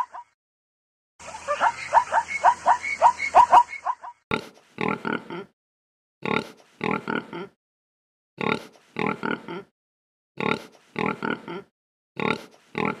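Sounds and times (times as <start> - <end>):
pig grunting: 4.3 - 5.5, 6.2 - 7.6, 8.4 - 9.7, 10.4 - 13.0.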